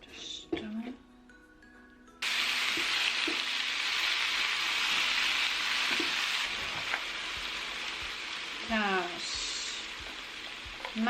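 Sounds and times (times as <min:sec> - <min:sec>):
vegetables sizzling in oil: 0:02.2 - 0:11.0.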